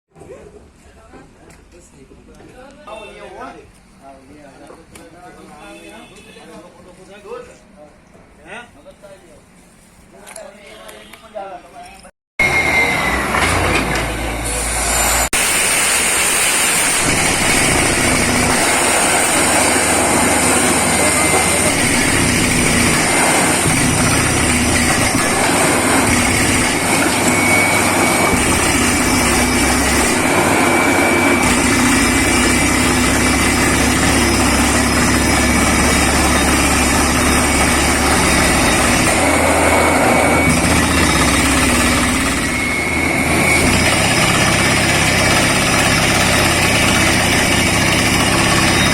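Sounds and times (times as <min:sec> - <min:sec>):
drilling rig running: 0:12.4 - 0:48.9
thin high whine: 0:12.4 - 0:48.9.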